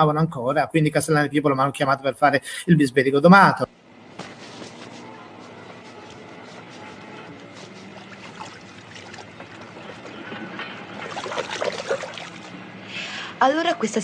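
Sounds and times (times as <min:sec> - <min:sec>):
vehicle engine idling: 0:03.9 - 0:10.7.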